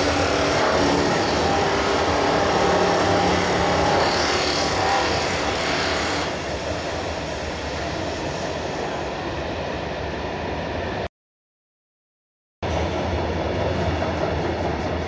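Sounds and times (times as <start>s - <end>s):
freight wagons rumbling on rails: 12.6s - 15.0s.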